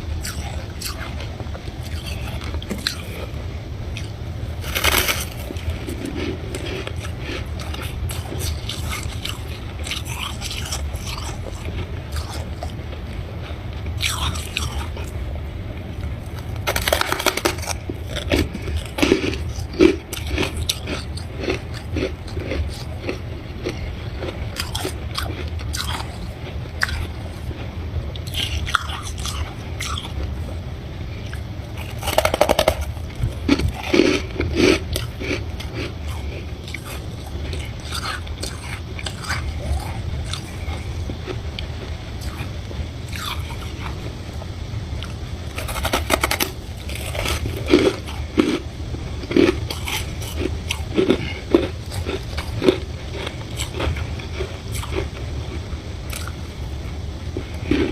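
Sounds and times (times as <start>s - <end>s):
steady low hum: 0.0s - 57.9s
person crunching frost: 0.2s - 3.3s, 3.9s - 12.8s, 16.2s - 27.2s, 31.2s - 41.2s, 45.0s - 48.6s, 49.2s - 55.1s.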